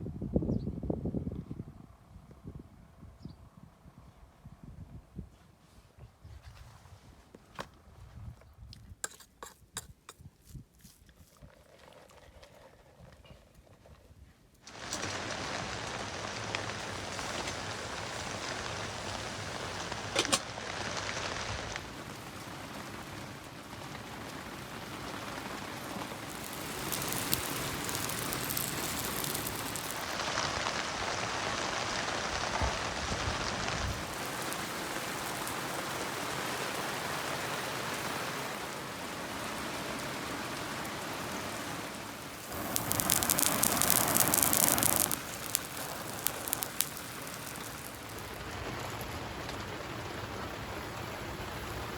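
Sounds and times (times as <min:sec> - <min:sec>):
steady rain: 0:14.7 - 0:51.9.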